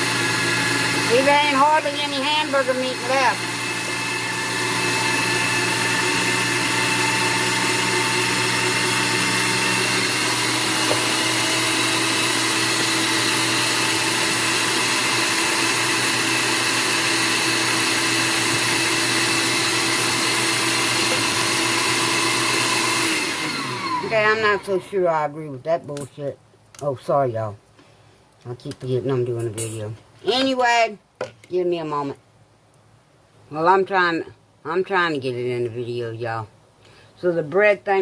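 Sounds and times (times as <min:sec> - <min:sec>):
electric meat grinder motor: 0:00.0 - 0:24.7.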